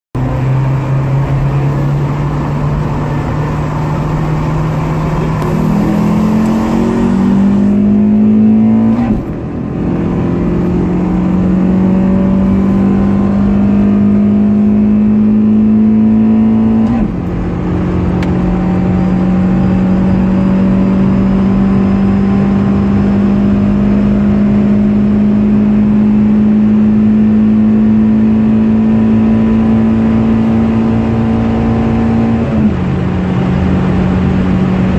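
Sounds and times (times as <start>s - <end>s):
car engine accelerating: 0.2s - 34.9s
gear upshifts: 1.3s - 13.9s.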